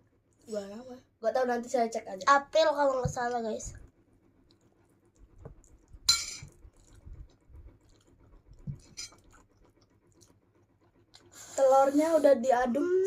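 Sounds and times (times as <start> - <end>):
electric fan hum: 0.0 - 13.0
soft chewing: 3.7 - 12.3
utensil clinking against dish: 6.1 - 6.5.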